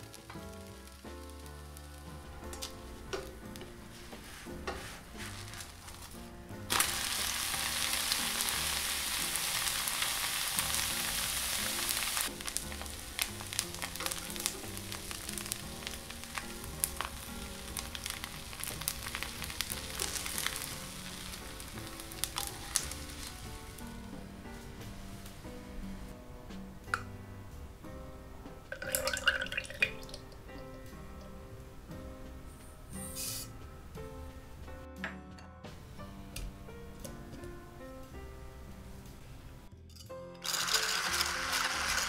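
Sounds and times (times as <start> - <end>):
batter sizzling in a pan: 0.0 - 25.4, 28.7 - 30.6, 32.9 - 33.6, 40.4 - 42.0
soft background music: 0.0 - 42.0
oil crackling and spitting: 5.2 - 24.0, 28.7 - 30.6, 40.4 - 42.0.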